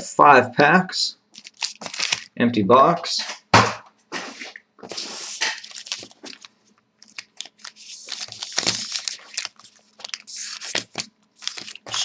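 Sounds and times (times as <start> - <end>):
card pack wrappers crinkling: 1.3 - 2.4, 4.8 - 12.0.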